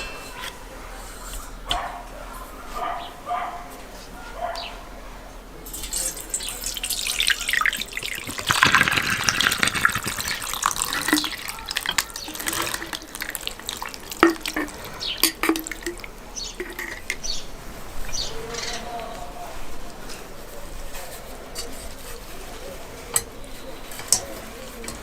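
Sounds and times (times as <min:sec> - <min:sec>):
water pouring and splashing: 0:05.7 - 0:18.2
clicks and knocks: 0:08.1 - 0:17.3.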